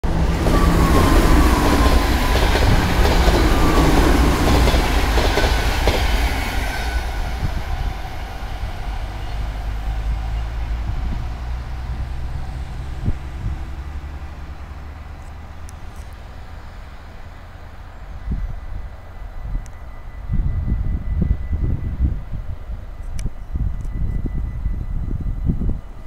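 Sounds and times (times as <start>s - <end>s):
train wheels clattering past: 0.1s - 10.6s.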